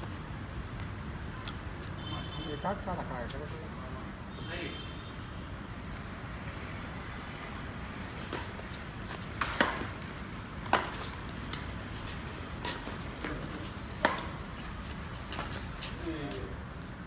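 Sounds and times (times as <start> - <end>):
rackets striking shuttlecock: 8.1 - 15.7.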